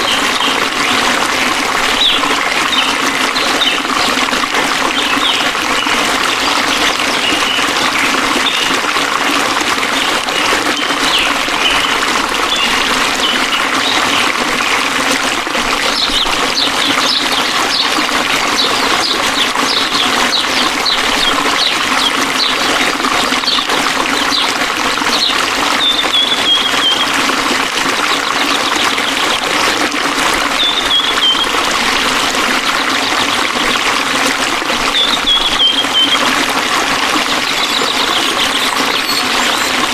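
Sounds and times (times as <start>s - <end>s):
flowing water: 0.0s - 39.9s
birds chirping: 1.9s - 9.0s, 9.9s - 14.8s, 15.8s - 27.3s, 30.4s - 31.7s, 34.8s - 36.4s, 37.4s - 39.9s.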